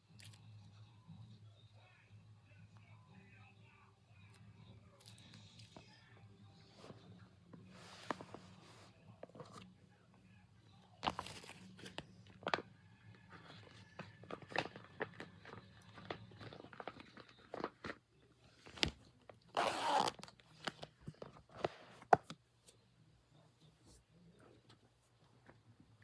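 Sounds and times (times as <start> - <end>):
crunchy rustling of squishy toys: 11.0 - 12.7.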